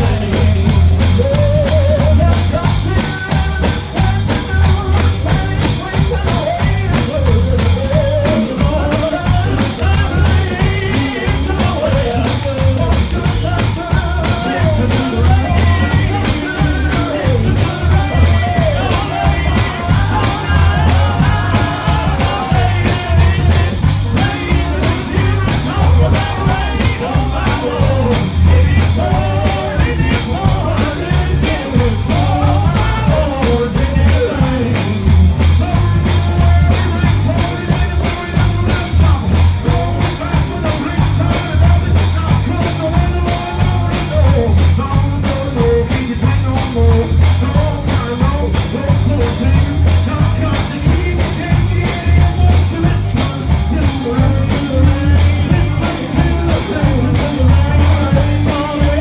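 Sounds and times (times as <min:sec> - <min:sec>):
drums fast steady beat: 0:00.0 - 0:59.0
gospel singing: 0:00.0 - 0:59.0
heavy bass line: 0:00.0 - 0:59.0.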